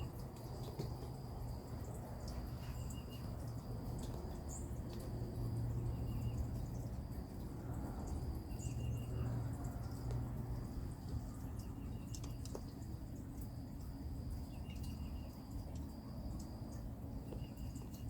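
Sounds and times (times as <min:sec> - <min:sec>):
small birds chirping: 0:00.0 - 0:18.0
steady low hum: 0:00.0 - 0:18.0.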